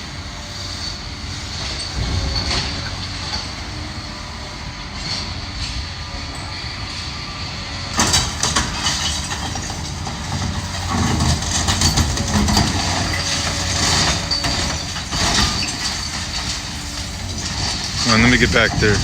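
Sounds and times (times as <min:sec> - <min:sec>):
diesel engine running: 0:00.0 - 0:19.0
debris crashing and clattering: 0:01.5 - 0:03.7, 0:08.0 - 0:19.0.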